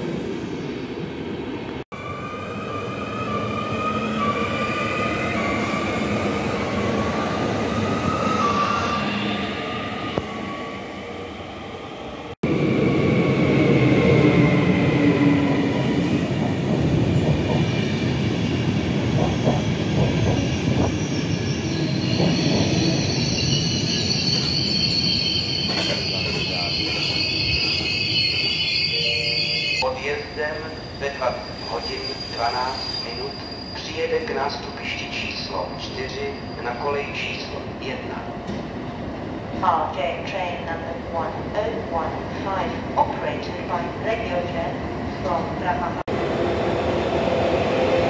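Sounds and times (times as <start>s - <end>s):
train wheels rumbling on rails: 12.8s - 23.3s
metallic wheel squeal: 21.0s - 34.1s.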